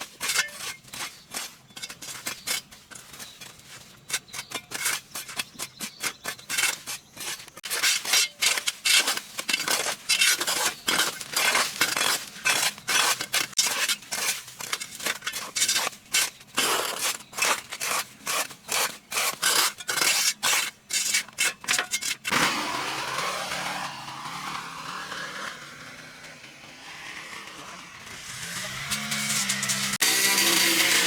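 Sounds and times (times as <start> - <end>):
rubbing and scraping strokes: 0.0 - 22.3.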